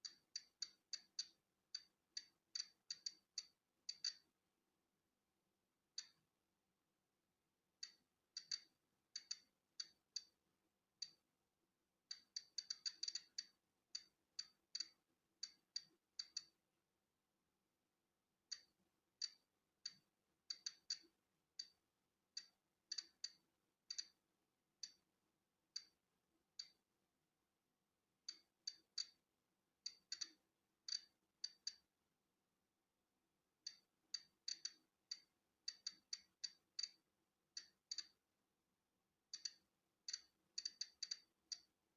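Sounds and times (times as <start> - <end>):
geiger counter clicking: 0.0 - 4.3, 6.0 - 6.2, 7.8 - 10.4, 11.0 - 11.2, 12.1 - 16.6, 18.5 - 21.8, 22.4 - 24.2, 24.8 - 25.0, 28.2 - 29.2, 29.9 - 31.9, 33.7 - 37.0, 37.6 - 38.2, 39.3 - 41.7.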